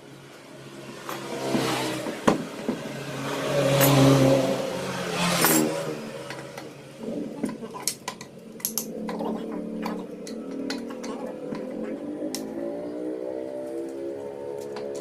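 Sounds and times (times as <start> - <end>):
passing vehicle engine revving: 0.8 - 7.4, 8.9 - 15.0
metallic tool clicks: 7.8 - 9.2.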